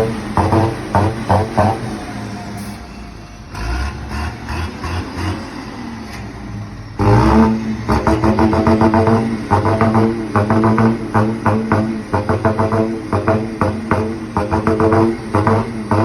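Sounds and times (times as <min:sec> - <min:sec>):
droning horn-like exhaust tone: 0:00.0 - 0:02.8, 0:07.0 - 0:16.0
truck exhaust rumble: 0:00.0 - 0:16.0.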